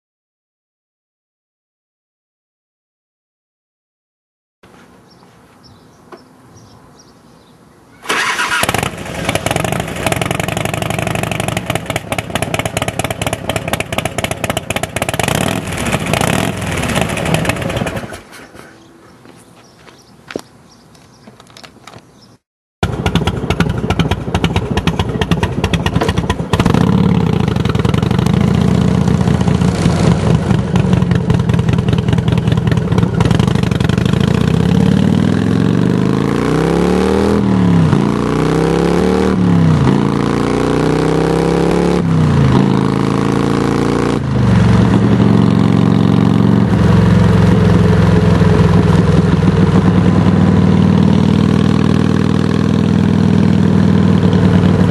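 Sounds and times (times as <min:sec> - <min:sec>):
motorcycle engine revving and idling: 0:08.1 - 0:18.3, 0:22.8 - 0:54.9.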